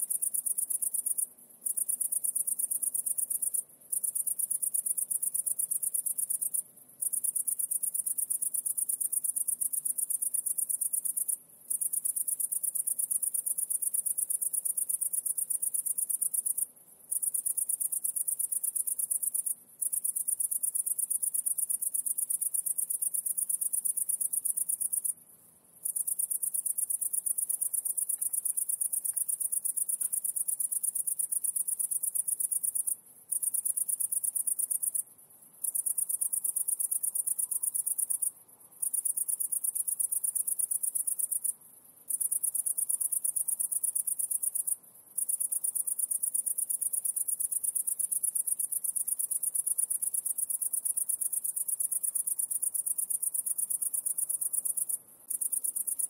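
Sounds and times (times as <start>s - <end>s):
high-pitched insect trill: 35.6s - 56.0s.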